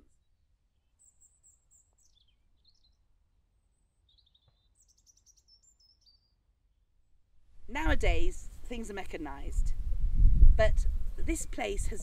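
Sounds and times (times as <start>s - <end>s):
birds chirping and whistling: 4.1s - 6.4s.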